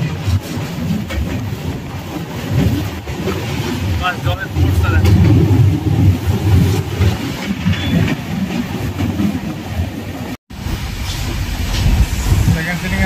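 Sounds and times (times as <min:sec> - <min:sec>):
wheel clatter: 0:00.0 - 0:10.4
train coach rumble: 0:00.0 - 0:13.0.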